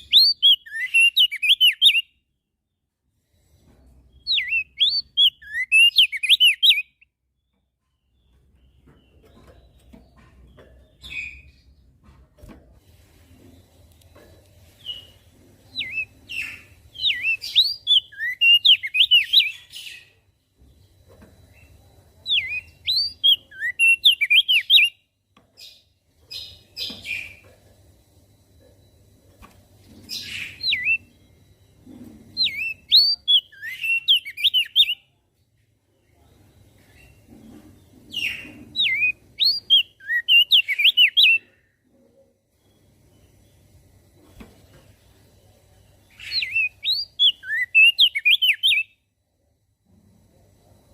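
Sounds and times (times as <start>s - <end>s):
bird singing whistled notes: 0.0s - 2.3s, 4.1s - 7.6s, 14.8s - 20.2s, 21.5s - 25.1s, 30.1s - 31.4s, 32.4s - 35.2s, 38.2s - 41.6s, 46.1s - 49.0s.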